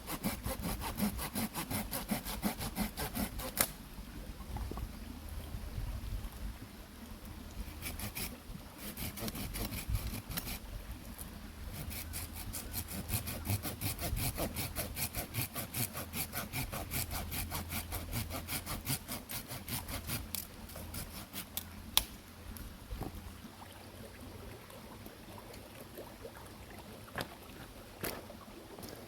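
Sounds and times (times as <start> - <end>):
hand saw cutting wood: 0.0 - 3.8, 7.6 - 10.6, 11.7 - 21.6.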